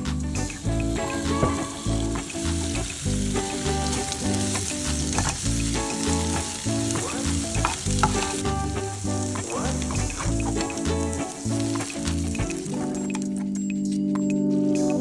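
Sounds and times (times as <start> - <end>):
food sizzling in oil: 0.0 - 13.4
background music with bass line: 0.0 - 15.0
utensil clicking in pan: 0.5 - 13.4.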